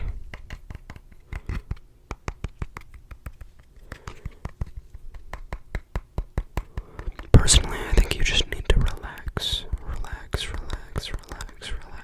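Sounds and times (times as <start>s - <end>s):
fingertips tapping microphone: 0.0s - 12.0s
soft scratching: 6.6s - 12.0s.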